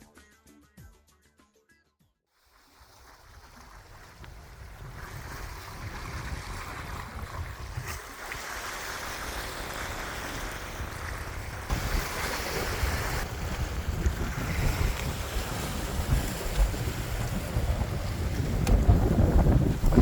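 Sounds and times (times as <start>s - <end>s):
sea waves washing: 2.6s - 20.0s
wind buffeting microphone: 3.6s - 8.1s, 8.8s - 20.0s.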